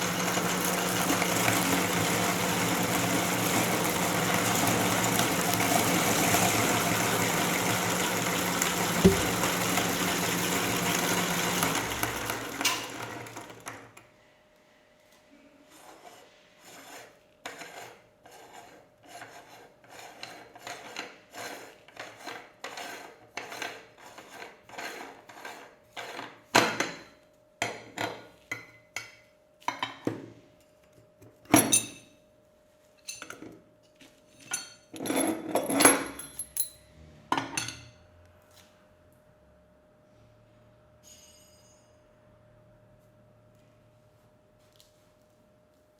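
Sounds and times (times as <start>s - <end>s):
meat grinder motor running: 0.0s - 13.8s
scrapes clicks and clinks: 34.3s - 36.9s.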